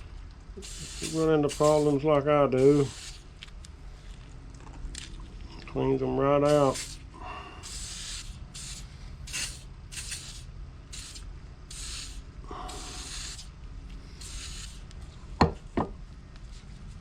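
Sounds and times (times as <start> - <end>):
aerosol spray hisses: 0.6 - 3.3, 6.5 - 14.9.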